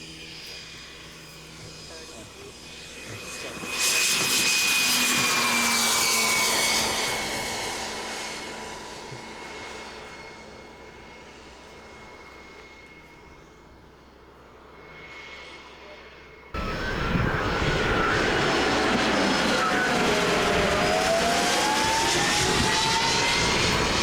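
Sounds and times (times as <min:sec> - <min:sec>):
model jet turbine passing: 0:16.6 - 0:24.0.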